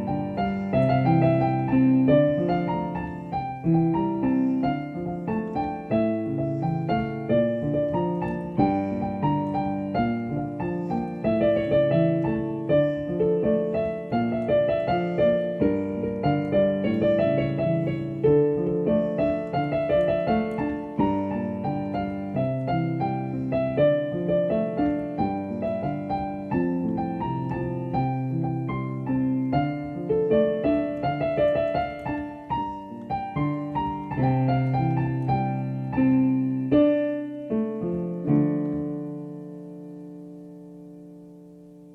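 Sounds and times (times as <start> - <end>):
piano music: 0.0 - 41.9.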